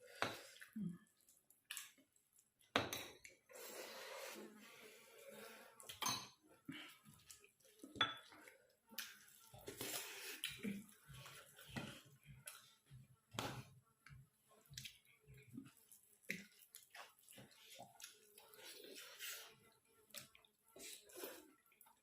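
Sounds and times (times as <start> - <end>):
wet eating sounds: 0.0 - 22.0
dishes and cutlery clinking: 5.9 - 6.4, 8.0 - 8.4.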